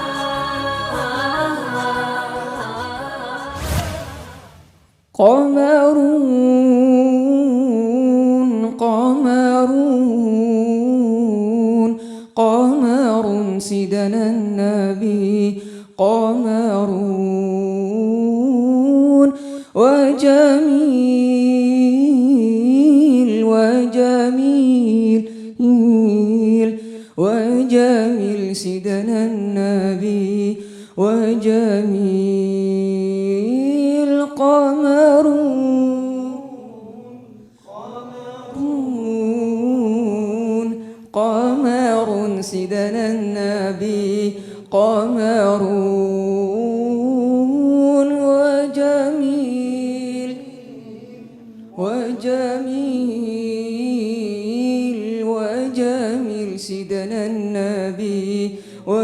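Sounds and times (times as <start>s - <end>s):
person singing unaccompanied: 0.0s - 3.8s
singer breathing: 12.0s - 12.4s, 15.6s - 15.9s, 19.4s - 19.8s, 25.2s - 25.6s, 26.8s - 27.2s, 30.6s - 31.0s, 37.4s - 37.8s, 40.8s - 41.1s, 44.3s - 44.7s, 58.5s - 58.9s.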